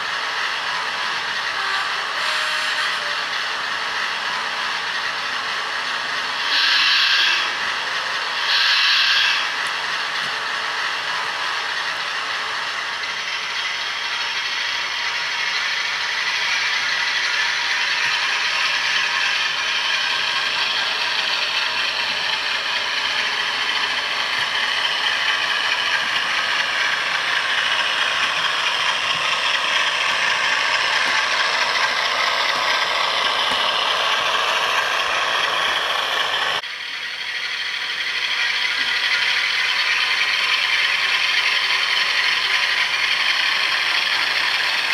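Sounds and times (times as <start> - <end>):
diesel engine sound from small speaker: 0.0 - 44.9
model train motor whirring and clattering: 0.0 - 44.9.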